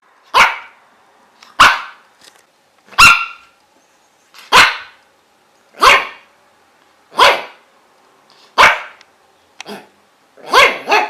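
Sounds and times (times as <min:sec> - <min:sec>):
dog barking: 0:00.3 - 0:00.8, 0:01.6 - 0:02.0, 0:03.0 - 0:03.6, 0:04.5 - 0:05.0, 0:05.8 - 0:06.3, 0:07.1 - 0:07.6, 0:08.6 - 0:09.0, 0:09.7 - 0:11.0.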